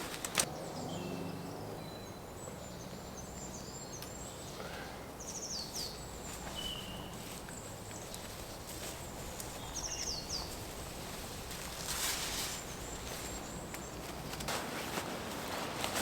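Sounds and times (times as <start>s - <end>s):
brief rustle: 0.0s - 0.5s
small birds chirping: 0.0s - 14.5s.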